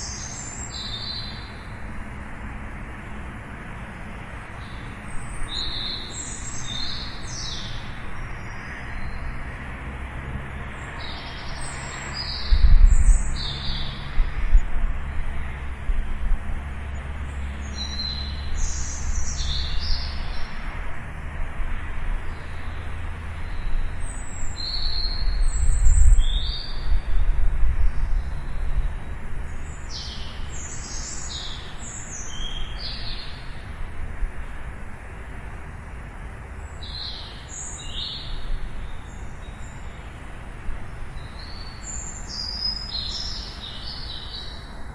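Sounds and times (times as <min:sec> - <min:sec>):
small birds chirping: 0:00.0 - 0:01.8, 0:04.2 - 0:09.4, 0:10.7 - 0:14.8, 0:16.8 - 0:20.6, 0:22.2 - 0:33.7, 0:36.6 - 0:44.9.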